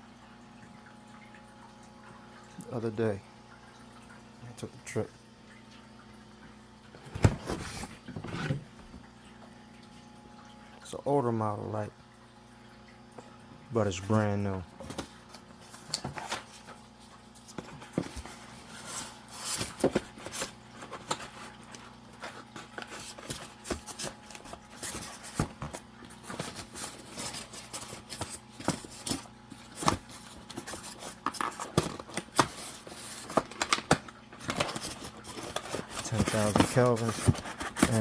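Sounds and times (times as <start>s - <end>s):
faint steady hum: 0.0s - 38.0s
clicks and scrapes of packaging: 14.8s - 38.0s.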